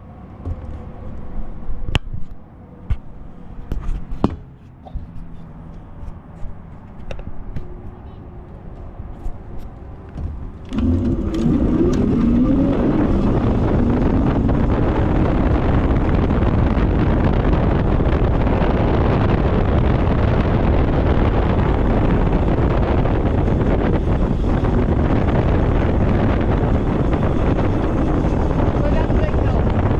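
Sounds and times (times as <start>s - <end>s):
wind rushing on microphone: 8.8s - 29.9s
wavering rising whine: 10.7s - 29.9s.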